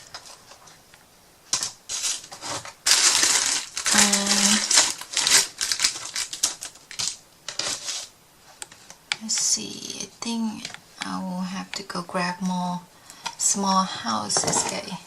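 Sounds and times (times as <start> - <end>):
rustling: 0.0 - 9.5.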